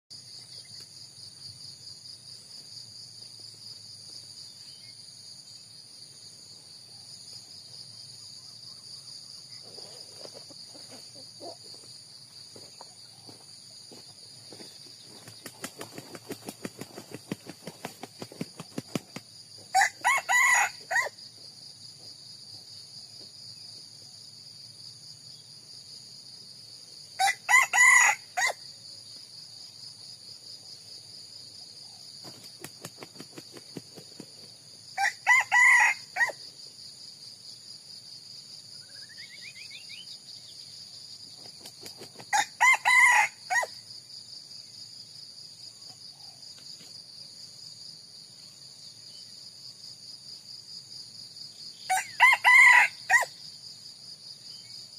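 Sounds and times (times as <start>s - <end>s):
high insect drone: 0.1s - 54.9s
rooster crowing: 19.7s - 21.2s, 27.2s - 28.6s, 35.0s - 36.4s, 42.3s - 43.7s, 51.9s - 53.3s.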